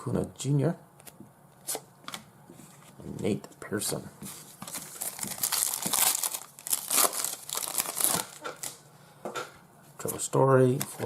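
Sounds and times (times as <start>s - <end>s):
plastic wrapper crinkling: 4.6s - 8.8s.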